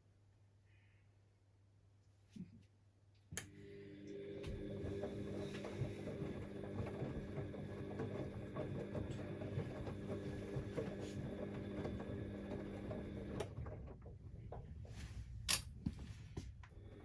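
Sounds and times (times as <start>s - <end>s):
washing machine motor hum: 3.4s - 14.9s, 16.6s - 17.0s.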